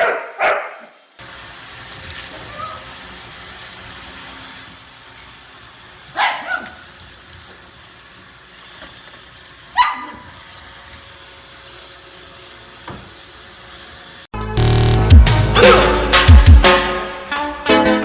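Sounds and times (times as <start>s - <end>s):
dog barking: 0.0s - 1.0s, 6.2s - 6.8s, 9.8s - 10.3s.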